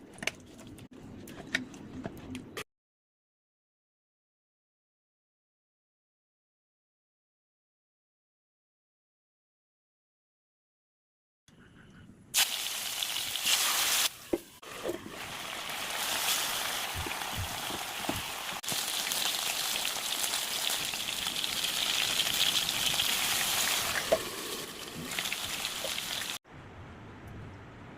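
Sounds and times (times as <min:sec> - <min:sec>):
chicken sizzling in hot oil: 0:12.4 - 0:26.4.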